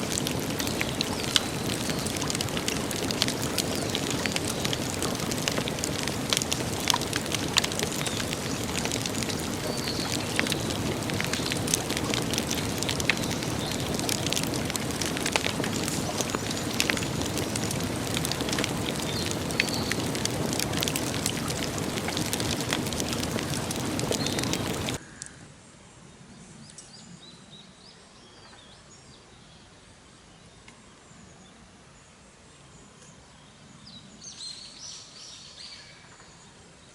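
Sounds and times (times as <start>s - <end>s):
campfire crackling and popping: 0.0s - 25.0s.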